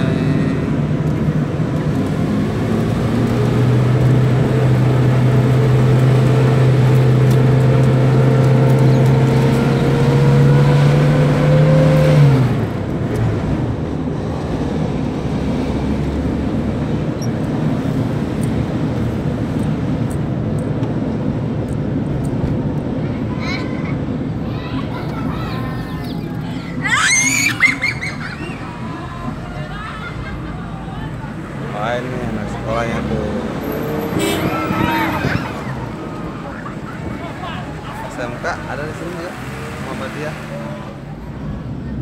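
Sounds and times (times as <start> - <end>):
car engine from inside cabin: 0.0 - 23.0
road and tyre noise: 0.0 - 42.0.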